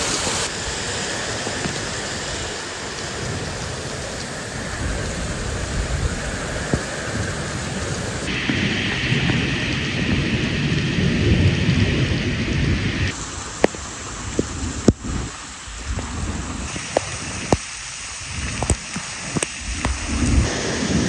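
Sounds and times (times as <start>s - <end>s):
steady rain falling: 0.0s - 21.0s
low rumble: 19.6s - 21.0s.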